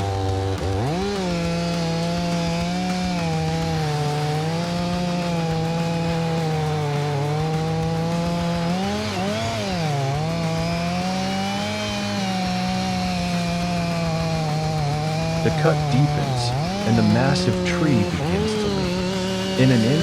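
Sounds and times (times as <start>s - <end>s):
chainsaw cutting tree trunk: 0.0s - 20.0s.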